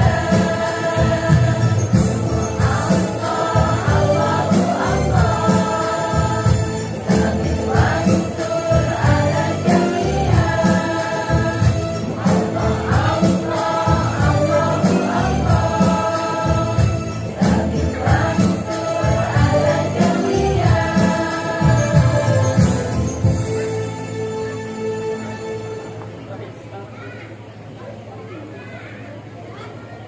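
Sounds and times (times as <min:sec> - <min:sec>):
women's choir singing: 0:00.0 - 0:23.6
percussion steady beat: 0:00.0 - 0:24.2.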